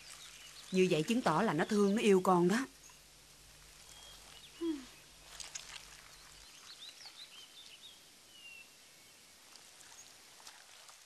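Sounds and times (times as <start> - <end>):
faint background hiss: 0.0 - 11.0
small bird chirping: 3.8 - 9.2.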